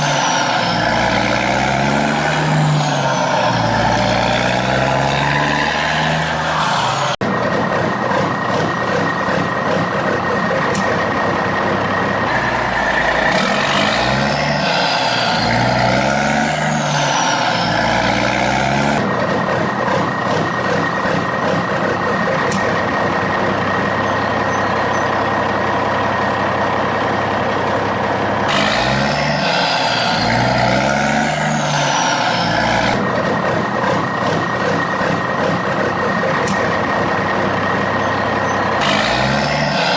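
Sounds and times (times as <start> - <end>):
truck engine revving: 0.0 - 39.9.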